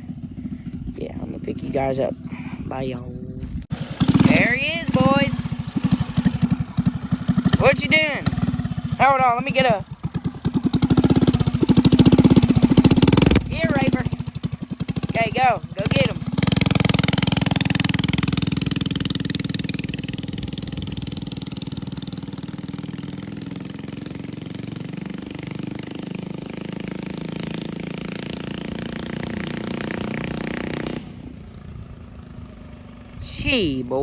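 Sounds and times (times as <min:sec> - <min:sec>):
mini bike engine running hard: 0:00.0 - 0:01.6, 0:03.7 - 0:33.2.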